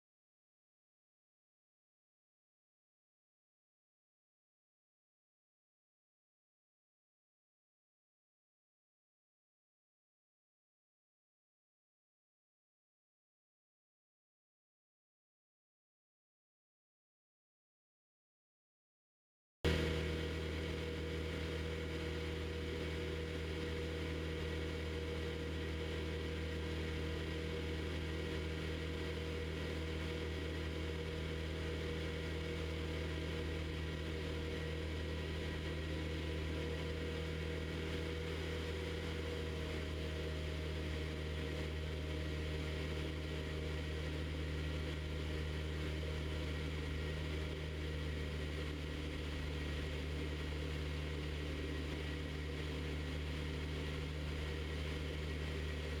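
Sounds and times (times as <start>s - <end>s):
airplane engine and propeller droning: 19.7s - 56.0s.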